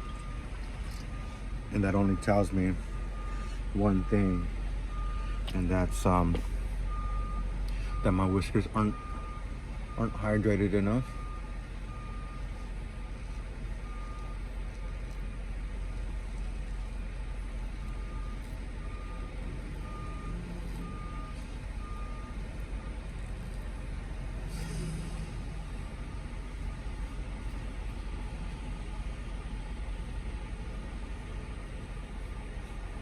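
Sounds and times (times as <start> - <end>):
reversing alarm beeping: 0.0 - 15.1, 17.7 - 29.6
low engine rumble: 0.0 - 33.0
brief hiss: 24.4 - 25.8.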